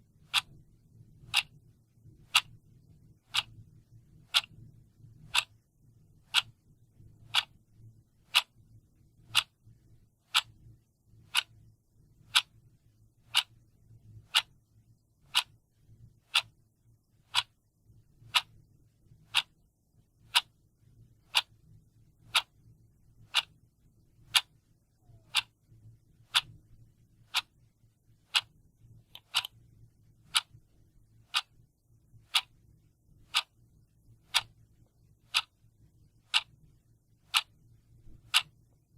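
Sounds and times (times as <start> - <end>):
clock ticking: 0.2 - 1.6, 2.2 - 5.6, 6.2 - 7.6, 8.2 - 8.6, 9.2 - 10.6, 11.2 - 12.6, 13.2 - 13.6, 14.2 - 15.6, 16.2 - 16.6, 17.2 - 17.6, 18.2 - 21.6, 22.2 - 22.6, 23.2 - 23.6, 24.2 - 26.6, 27.2 - 36.7, 37.3 - 38.9.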